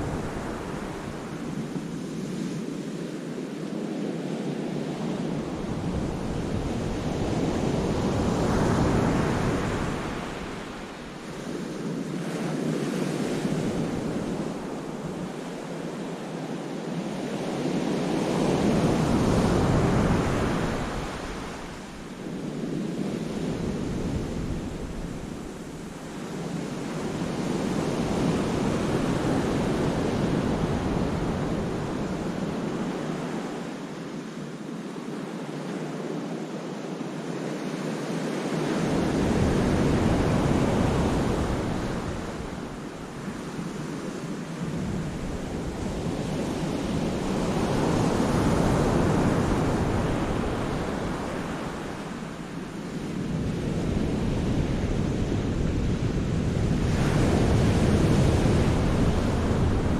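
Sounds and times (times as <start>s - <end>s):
wind buffeting microphone: 38.8s - 59.9s.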